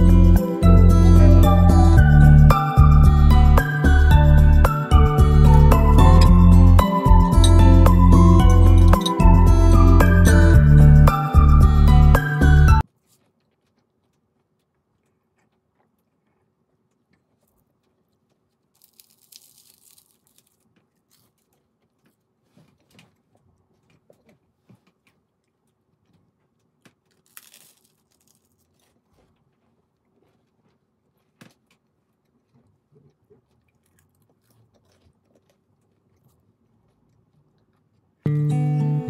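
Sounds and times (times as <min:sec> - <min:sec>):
chewing and crunching food: 0:12.8 - 0:38.3.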